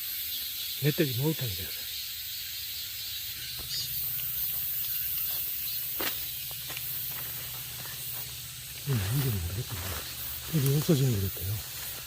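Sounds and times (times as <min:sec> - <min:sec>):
steady high hiss: 0:00.0 - 0:12.0
footsteps through undergrowth: 0:03.4 - 0:12.0
twigs and leaves crackling: 0:03.4 - 0:12.0.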